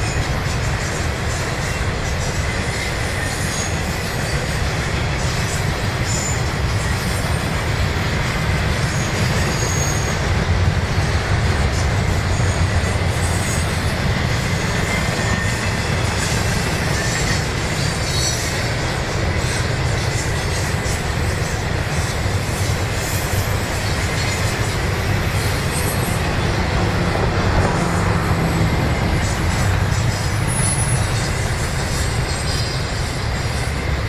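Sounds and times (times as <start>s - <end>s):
freight train rumbling past: 0.0s - 34.0s
wheel squeal: 2.4s - 4.6s, 8.8s - 10.5s, 27.6s - 33.8s.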